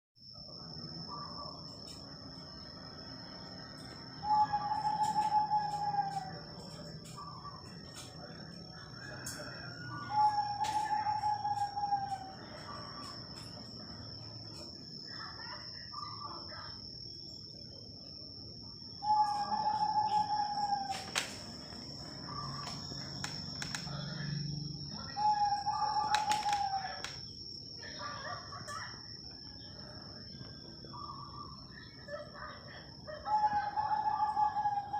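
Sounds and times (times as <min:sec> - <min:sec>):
high-pitched whine: 0:00.3 - 0:15.2, 0:15.8 - 0:28.0
dove cooing: 0:04.2 - 0:13.2, 0:19.0 - 0:21.4, 0:25.0 - 0:27.1, 0:32.1 - 0:34.9.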